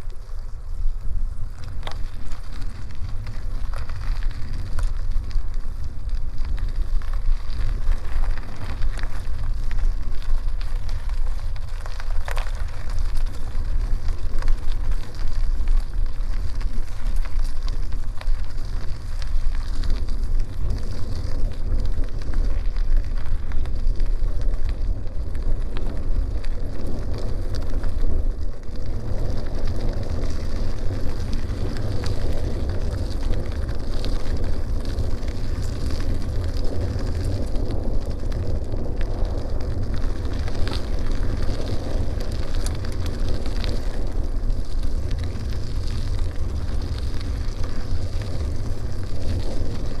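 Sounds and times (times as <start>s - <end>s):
bicycle tyres on gravel: 0.0s - 50.0s
wind rumbling on microphone: 0.0s - 50.0s.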